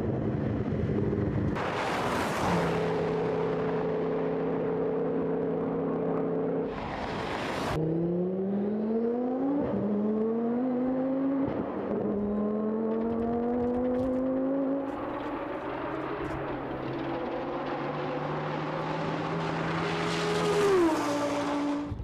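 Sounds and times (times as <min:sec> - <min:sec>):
car engine accelerating hard: 0:07.7 - 0:21.9.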